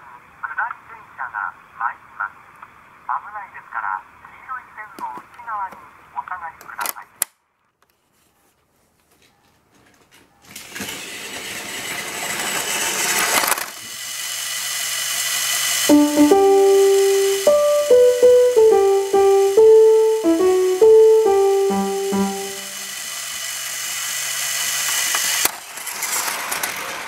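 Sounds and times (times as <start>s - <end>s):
toy train motor whirring: 10.5s - 18.5s, 19.3s - 27.0s
organ melody: 15.9s - 23.0s.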